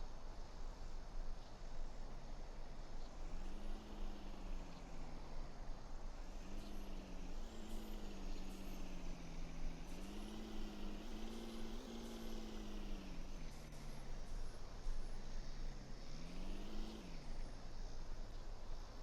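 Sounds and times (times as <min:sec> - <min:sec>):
truck engine revving: 0:06.4 - 0:14.1, 0:16.0 - 0:17.4.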